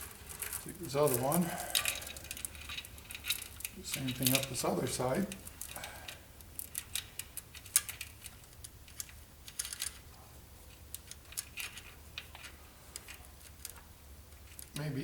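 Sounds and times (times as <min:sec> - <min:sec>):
light metallic clicks and clinks: 0:00.4 - 0:08.1.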